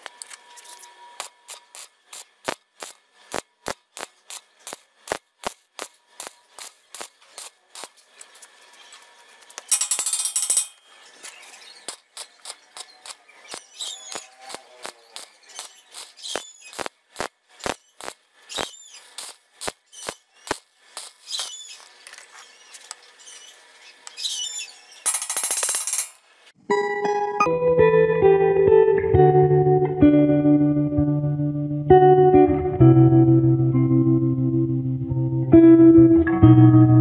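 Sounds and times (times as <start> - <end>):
welding arc crackling: 0.0 - 26.4
chipping hammer tapping metal: 9.5 - 21.9.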